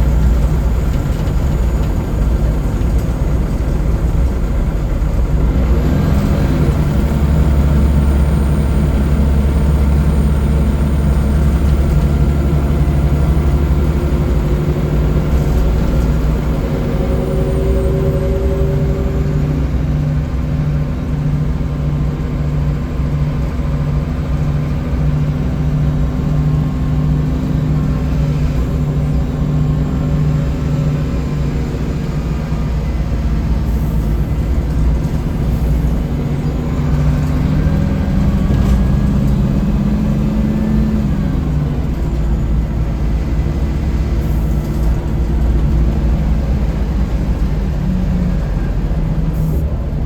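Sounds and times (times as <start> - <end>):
bus diesel engine droning: 0.0 - 50.0
brief gliding higher tone: 16.4 - 20.3.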